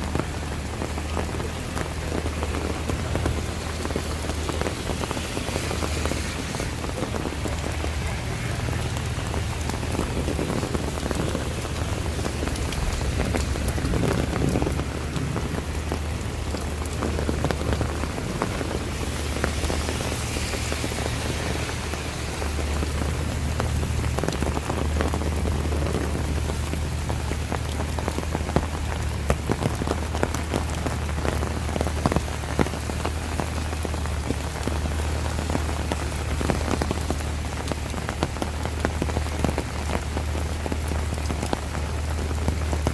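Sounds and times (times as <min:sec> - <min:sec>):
low rumble: 0:00.0 - 0:28.4
raindrops pattering: 0:00.0 - 0:42.9.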